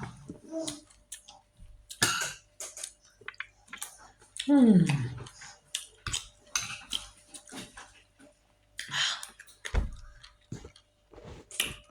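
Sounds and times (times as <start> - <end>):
cutlery clinking on a dish: 2.0 - 2.8
dull thump: 9.7 - 10.1.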